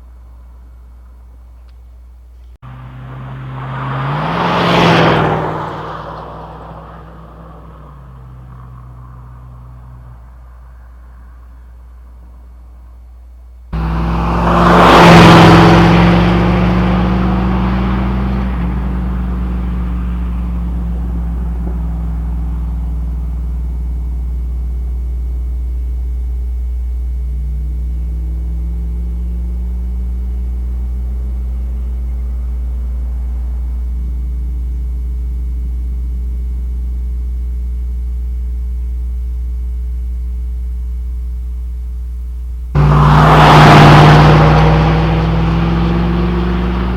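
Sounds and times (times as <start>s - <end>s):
engine accelerating hard: 2.6s - 11.2s, 13.7s - 35.4s, 42.7s - 46.9s.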